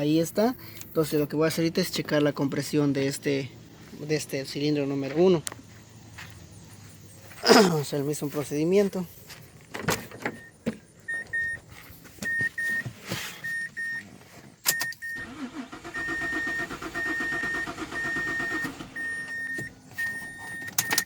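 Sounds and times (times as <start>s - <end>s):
car warning chime beeping: 10.3s - 11.6s, 12.2s - 21.0s
car engine cranking: 13.7s - 21.0s.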